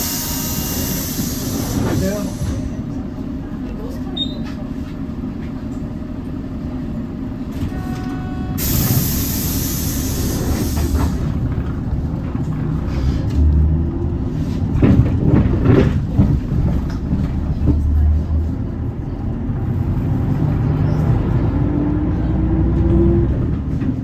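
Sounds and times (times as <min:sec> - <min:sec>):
compressed-air hiss: 0:00.0 - 0:02.4, 0:08.6 - 0:11.2
bus engine running: 0:00.0 - 0:24.0.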